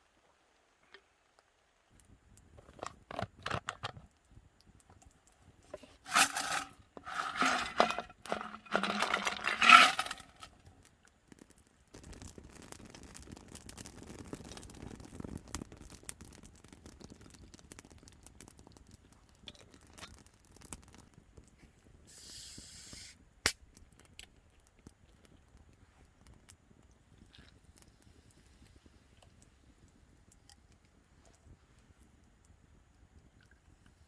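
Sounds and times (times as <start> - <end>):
scraping and rustling: 5.7 - 10.6
faint even hiss: 21.5 - 23.6.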